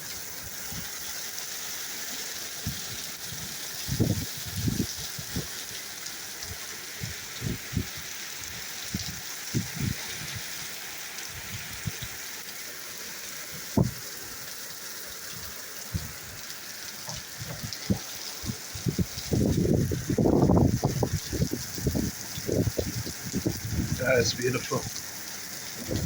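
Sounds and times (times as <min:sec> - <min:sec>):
rain falling: 0:00.0 - 0:26.0
low thumps on microphone: 0:13.8 - 0:14.0, 0:15.9 - 0:16.2, 0:17.1 - 0:18.1.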